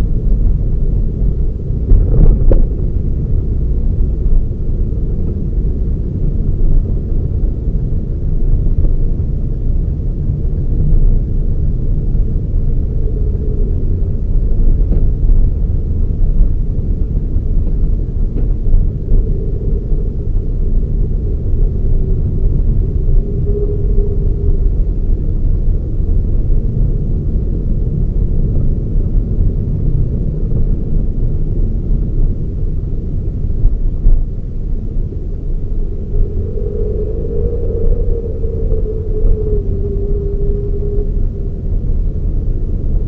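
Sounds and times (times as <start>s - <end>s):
car engine rumble: 0.0s - 43.0s
faint hum: 0.0s - 43.0s
road noise: 34.2s - 43.0s.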